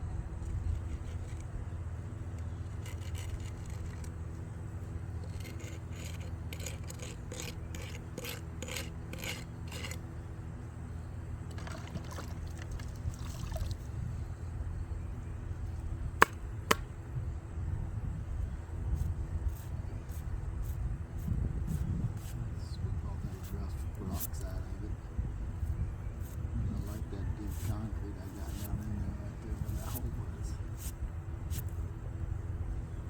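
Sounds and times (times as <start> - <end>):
tool scraping wet concrete: 2.7 - 4.2, 5.2 - 10.0, 29.5 - 30.1.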